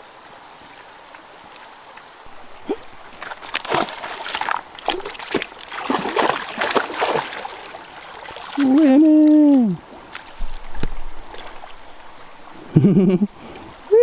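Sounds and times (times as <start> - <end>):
stream water rushing: 0.0 - 14.0
dog splashing through water: 2.4 - 8.9.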